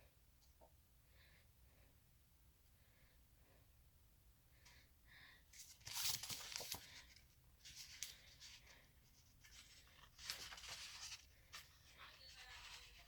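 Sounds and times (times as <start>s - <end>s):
booklet pages rustling: 5.6s - 13.0s.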